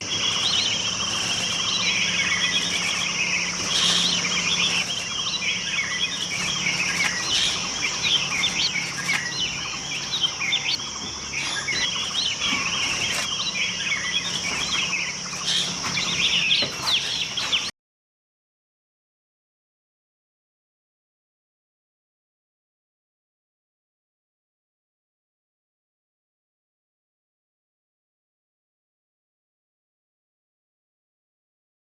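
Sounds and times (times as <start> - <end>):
small birds chirping: 0.0 - 17.7.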